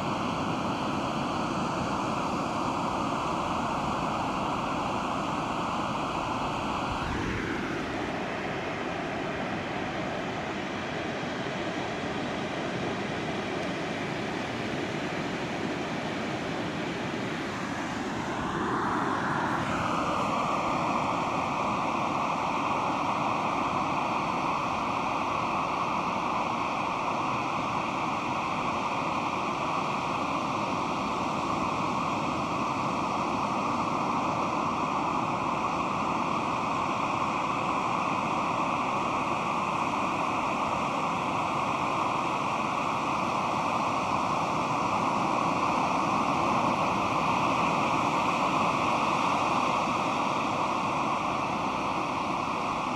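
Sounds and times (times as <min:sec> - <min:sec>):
waves breaking: 0:03.8 - 0:09.0.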